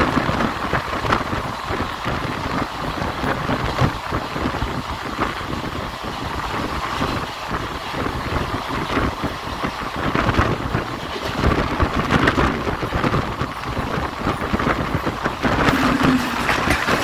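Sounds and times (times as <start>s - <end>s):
wheel-on-rail and air rush: 0.0s - 17.0s
coach rattling: 15.5s - 17.0s.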